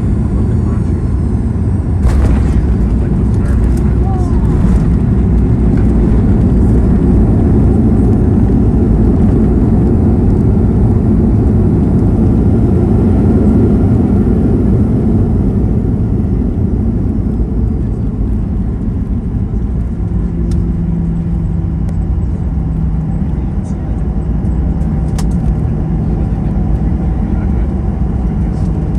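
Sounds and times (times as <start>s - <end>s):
jet engines and airflow rumble: 0.0s - 28.9s
low engine hum: 2.0s - 28.9s.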